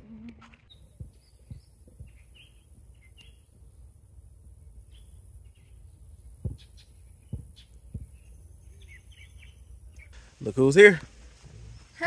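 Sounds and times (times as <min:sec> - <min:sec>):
low background noise: 0:00.0 - 0:12.0
bird chirps: 0:00.5 - 0:03.6, 0:04.8 - 0:10.3
high-pitched hiss: 0:10.1 - 0:12.0.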